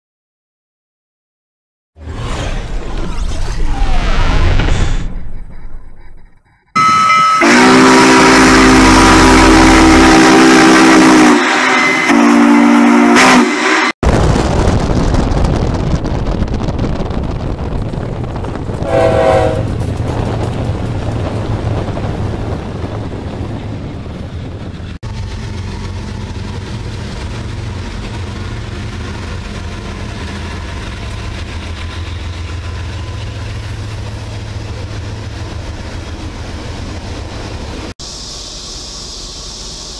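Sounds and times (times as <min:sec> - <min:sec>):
freight train rumbling past: 0:05.0 - 0:39.9
train air horn blasts: 0:06.8 - 0:14.0, 0:18.8 - 0:19.8.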